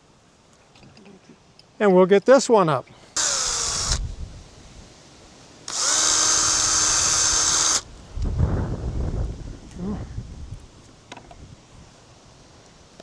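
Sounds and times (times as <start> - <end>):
cordless power drill running: 3.2 - 4.6, 5.7 - 8.1.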